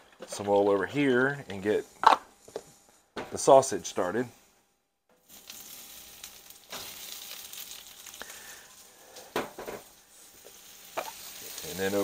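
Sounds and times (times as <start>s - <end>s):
sausage sizzling on a griddle: 5.1s - 12.0s.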